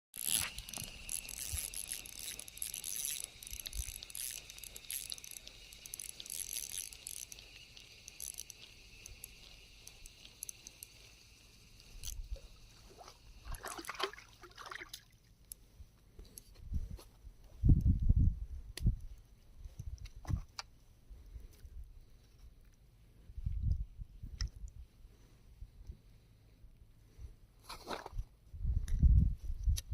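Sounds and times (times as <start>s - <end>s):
small clicks and crackles: 0.1s - 12.5s
water trickling and splashing: 0.2s - 15.3s.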